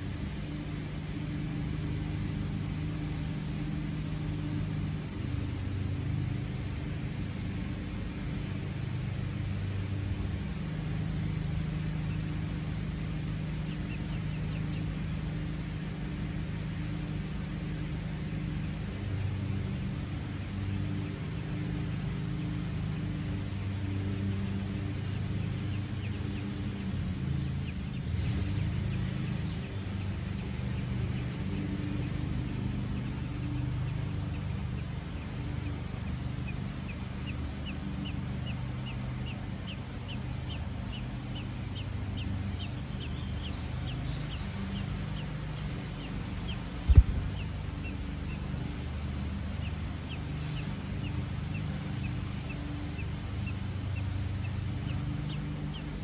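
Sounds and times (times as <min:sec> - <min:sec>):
steady low hum: 0:00.0 - 0:56.0
bird chirping: 0:20.7 - 0:48.8
sharp thump: 0:46.9 - 0:47.7.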